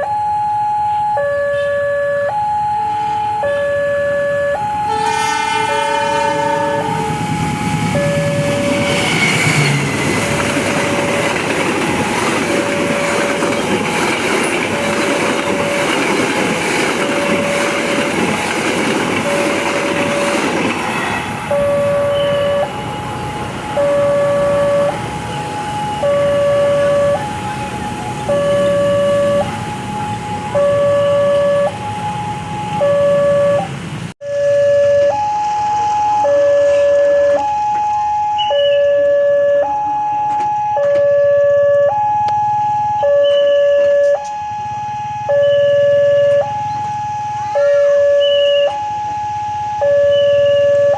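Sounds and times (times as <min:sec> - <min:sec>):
level crossing alarm: 0:00.0 - 0:50.9
train passing: 0:02.5 - 0:41.2
train horn: 0:04.8 - 0:10.3.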